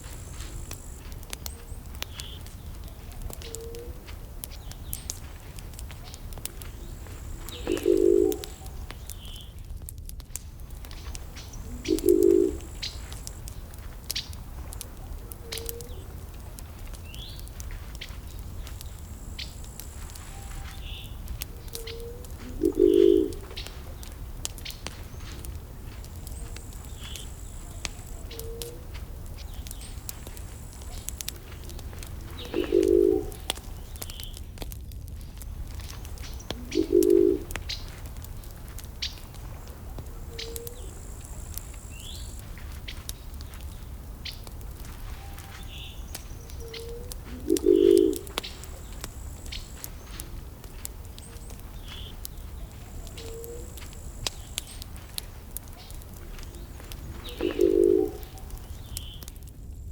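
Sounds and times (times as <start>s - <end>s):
wood fire crackling: 0.0s - 59.9s
low coo-like calls: 2.4s - 4.1s, 7.5s - 8.9s, 11.6s - 13.0s, 21.5s - 24.2s, 26.2s - 29.0s, 30.8s - 33.8s, 36.0s - 37.7s, 39.7s - 42.4s, 45.0s - 55.0s, 55.7s - 58.6s.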